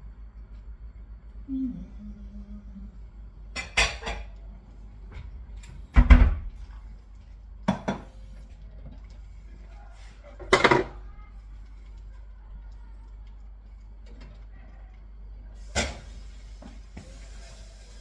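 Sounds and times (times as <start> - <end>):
kitchen knocks and clatters: 3.6 - 4.3, 7.6 - 9.0, 10.2 - 11.1.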